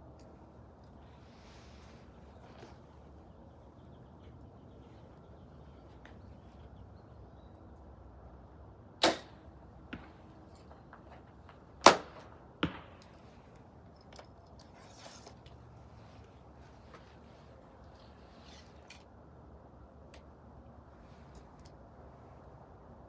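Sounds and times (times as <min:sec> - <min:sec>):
arrow thudding into target: 0:09.0 - 0:09.3.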